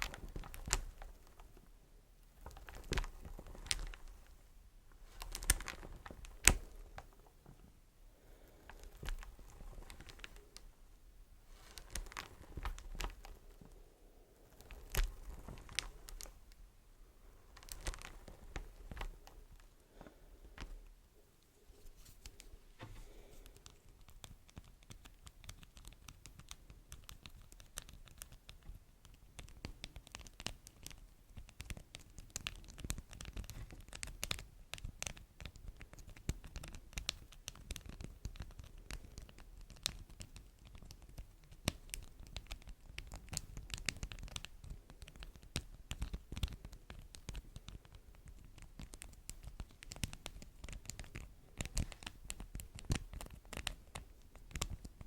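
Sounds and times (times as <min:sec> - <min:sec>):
hands crinkling wax wraps: 0:00.0 - 0:01.7, 0:02.4 - 0:07.6, 0:08.2 - 0:10.8, 0:11.5 - 0:21.0, 0:21.6 - 0:55.0.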